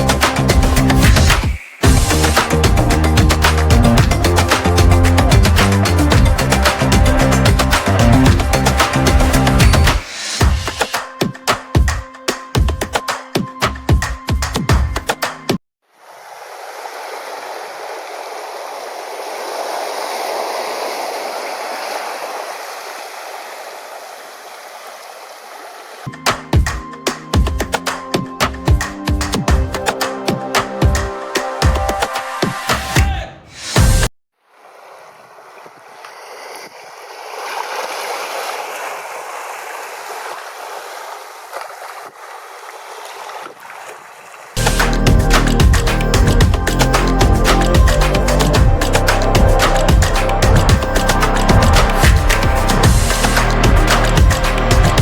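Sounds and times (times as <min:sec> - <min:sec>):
music: 0:00.0 - 0:15.6, 0:26.1 - 0:34.1, 0:44.6 - 0:55.0
rushing water: 0:00.0 - 0:33.0, 0:33.6 - 0:55.0.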